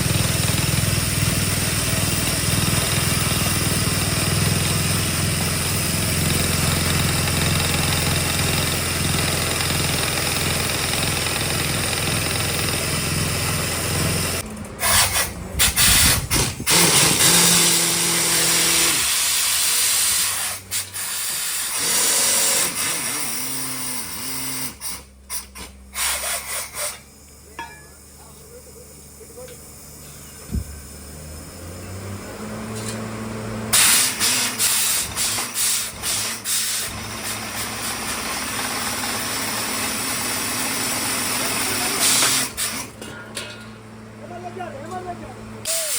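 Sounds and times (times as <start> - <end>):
drilling rig engine running: 0.0 - 45.9.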